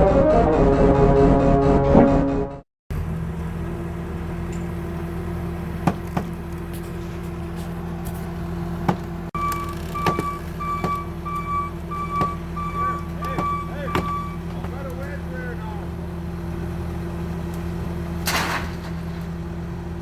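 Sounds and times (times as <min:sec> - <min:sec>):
large vehicle engine running: 0:02.9 - 0:20.0
sharp knocks: 0:05.8 - 0:06.4, 0:08.9 - 0:14.8
reversing alarm beeping: 0:09.4 - 0:14.6.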